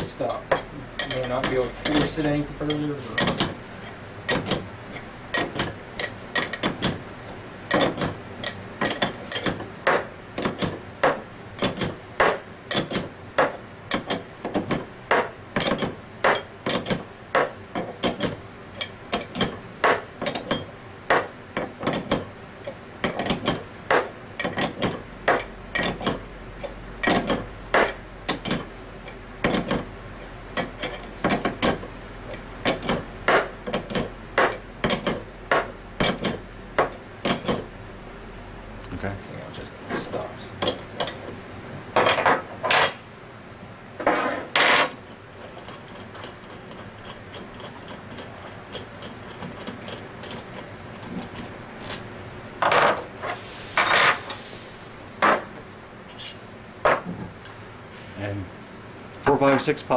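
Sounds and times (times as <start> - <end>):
hammer tapping on metal: 0.5 - 7.0, 23.0 - 37.7.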